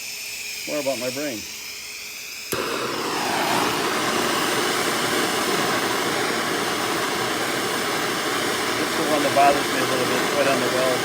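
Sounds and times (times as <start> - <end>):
welding arc hiss and buzz: 0.0 - 11.0
welding arc striking crack: 2.5 - 11.0.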